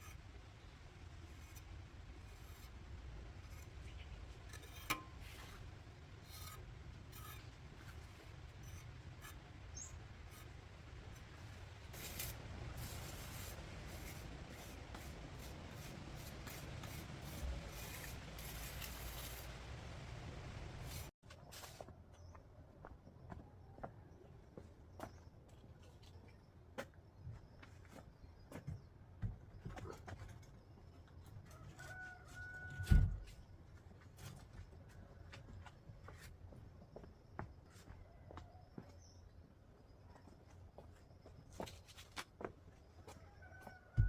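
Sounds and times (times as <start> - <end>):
short rubbing strokes: 11.2 - 21.1.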